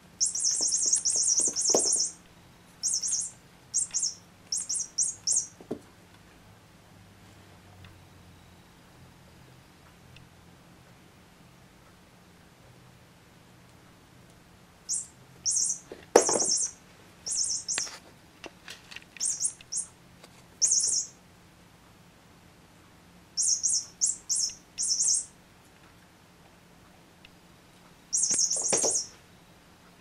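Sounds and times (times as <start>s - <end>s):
toy bird chirping: 0.2s - 2.2s, 2.8s - 5.6s, 14.9s - 18.0s, 19.2s - 20.0s, 20.6s - 21.2s, 23.4s - 25.4s, 28.1s - 29.2s.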